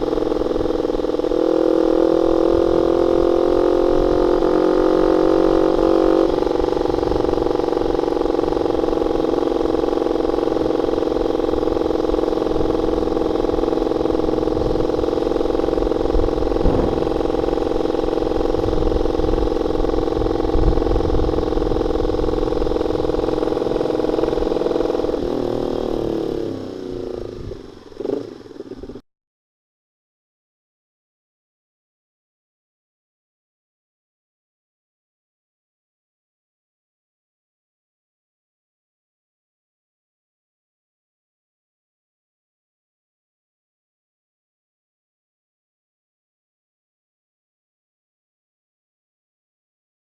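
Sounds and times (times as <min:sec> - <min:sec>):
motorcycle engine exhaust note: 0:00.0 - 0:29.0.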